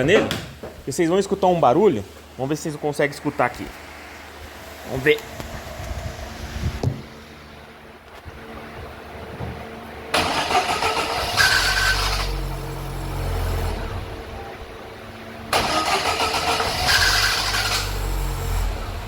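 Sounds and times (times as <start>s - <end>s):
car engine running low: 3.6s - 19.0s
starter motor cranking: 10.1s - 12.5s, 15.5s - 18.0s.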